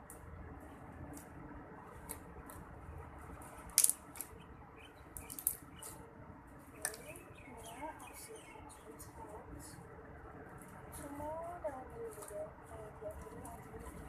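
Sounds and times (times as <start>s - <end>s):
low steady background: 0.0s - 14.0s
small objects clicking: 3.4s - 4.4s, 5.1s - 6.0s.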